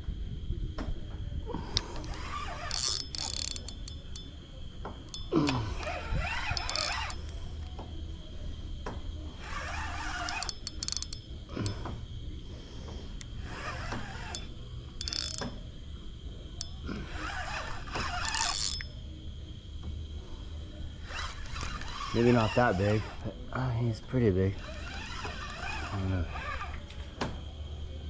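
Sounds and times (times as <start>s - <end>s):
fishing reel ratcheting: 1.5s - 7.8s, 9.3s - 12.0s, 13.2s - 15.8s, 16.4s - 19.0s, 21.0s - 23.4s, 24.5s - 26.9s.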